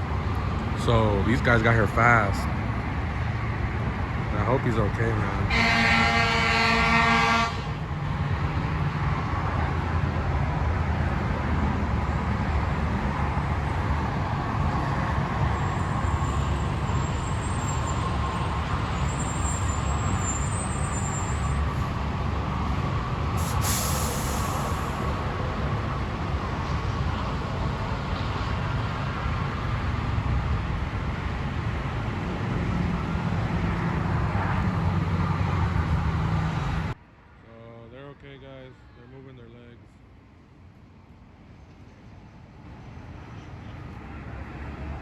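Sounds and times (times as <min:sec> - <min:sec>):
vehicle engines rumbling: 0:00.0 - 0:45.0
vehicle horn: 0:05.5 - 0:07.8
brief high hiss: 0:23.4 - 0:25.0.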